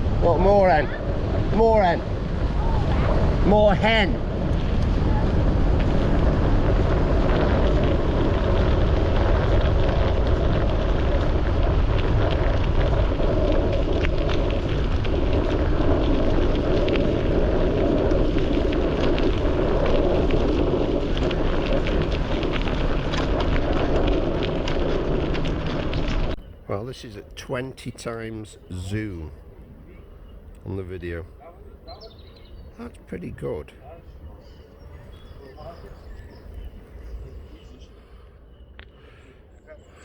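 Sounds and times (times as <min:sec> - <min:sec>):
wind buffeting microphone: 0:00.0 - 0:26.6
faint ticks and crackles: 0:03.1 - 0:32.6.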